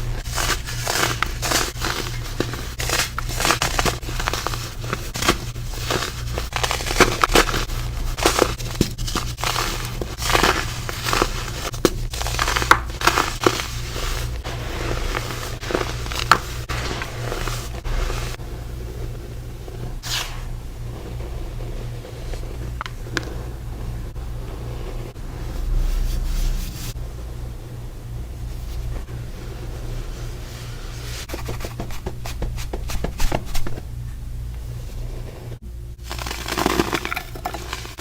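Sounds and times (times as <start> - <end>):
baking soda crunching: 0.0 - 24.0, 36.0 - 38.0.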